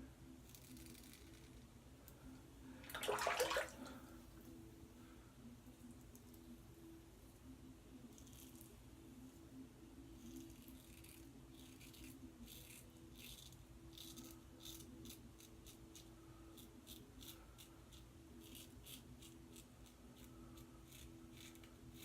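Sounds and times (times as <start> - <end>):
razor scraping stubble: 0.4 - 1.7, 10.2 - 22.0.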